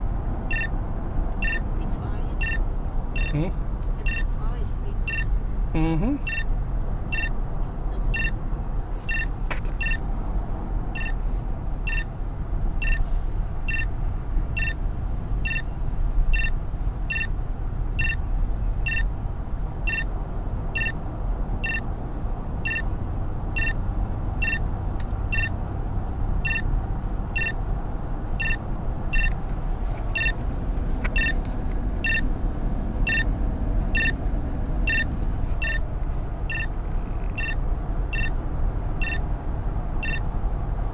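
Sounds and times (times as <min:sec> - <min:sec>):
car road and engine noise: 0:00.0 - 0:40.9
short electronic beeps: 0:00.5 - 0:00.8, 0:01.4 - 0:04.4, 0:05.0 - 0:07.4, 0:08.1 - 0:08.4, 0:09.1 - 0:10.0, 0:10.9 - 0:11.2, 0:11.8 - 0:12.1, 0:12.8 - 0:13.9, 0:14.5 - 0:14.8, 0:15.4 - 0:15.7, 0:16.3 - 0:17.4, 0:18.0 - 0:18.2, 0:18.8 - 0:19.1, 0:19.8 - 0:20.1, 0:20.7 - 0:21.0, 0:21.6 - 0:21.8, 0:22.6 - 0:22.9, 0:23.6 - 0:23.8, 0:24.4 - 0:24.7, 0:25.3 - 0:25.6, 0:26.4 - 0:26.7, 0:27.4 - 0:27.6, 0:28.4 - 0:29.4, 0:30.1 - 0:30.4, 0:31.1 - 0:31.4, 0:32.0 - 0:32.3, 0:33.0 - 0:33.3, 0:33.9 - 0:34.2, 0:34.8 - 0:35.8, 0:36.5 - 0:38.4, 0:39.0 - 0:39.2, 0:40.0 - 0:40.3.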